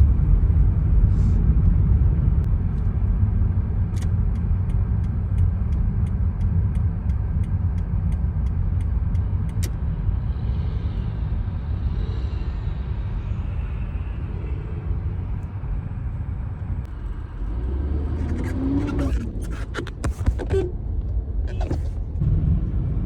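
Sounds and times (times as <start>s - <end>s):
car engine and tyres rumbling: 0.0s - 23.0s
light ticking: 3.9s - 9.8s.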